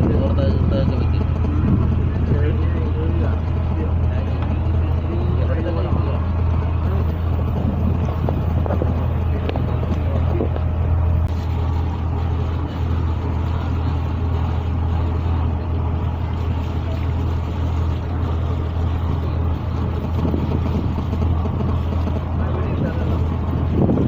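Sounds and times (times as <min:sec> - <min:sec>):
boat engine droning: 0:00.0 - 0:24.0.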